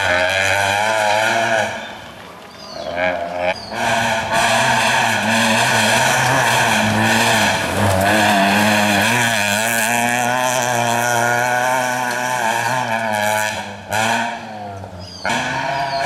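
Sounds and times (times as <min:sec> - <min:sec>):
rally car engine at high revs: 0:00.0 - 0:02.1, 0:03.0 - 0:16.0.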